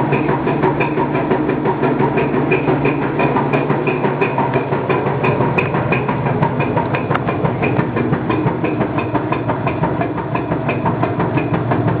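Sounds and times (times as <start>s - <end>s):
washing machine humming: 0.0s - 12.0s
washing machine rapid clicking: 0.0s - 12.0s.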